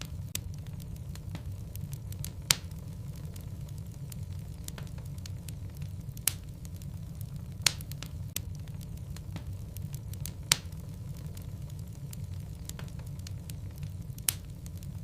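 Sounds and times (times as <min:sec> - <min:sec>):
low rumble of flames: 0:00.0 - 0:15.0
wood crackling and popping: 0:00.0 - 0:15.0.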